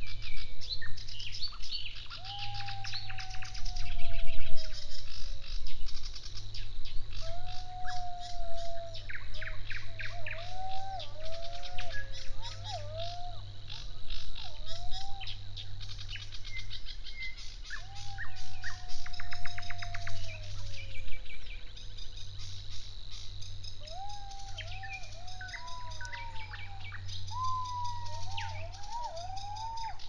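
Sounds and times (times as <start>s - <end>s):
birds chattering trills: 0.0s - 30.0s
low gliding whistles: 0.0s - 30.0s.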